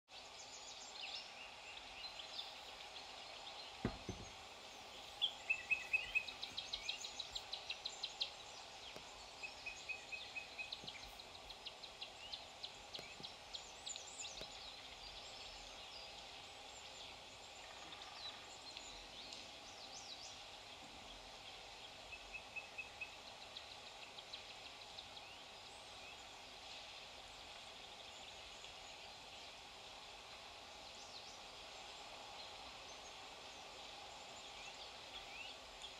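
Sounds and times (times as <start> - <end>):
faint steady hiss: 0.1 - 35.9
songbirds chirping and trilling: 0.1 - 35.9
low thump: 3.8 - 4.4.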